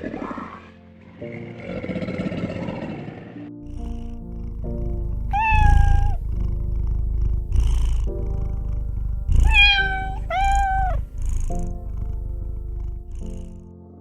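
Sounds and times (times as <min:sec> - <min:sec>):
background music: 0:00.0 - 0:14.0
animal calling: 0:05.3 - 0:06.3, 0:09.2 - 0:12.2.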